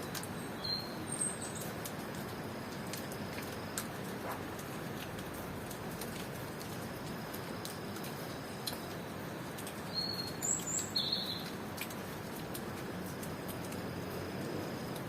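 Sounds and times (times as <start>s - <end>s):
steady rain with drips: 0.0s - 15.0s
bird chirps: 9.9s - 11.5s.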